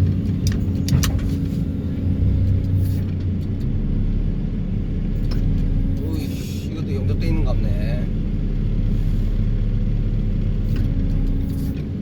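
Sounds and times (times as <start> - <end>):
excavator with vibro hammer: 0.0 - 1.6.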